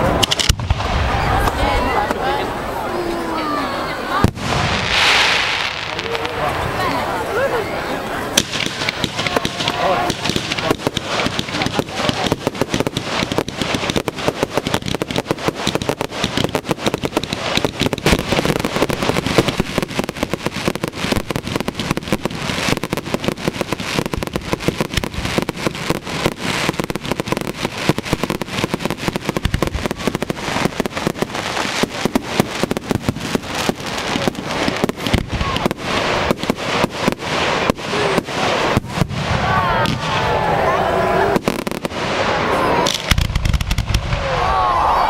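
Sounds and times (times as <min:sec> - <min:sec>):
fireworks bangs and crackles: 0:00.0 - 0:45.0.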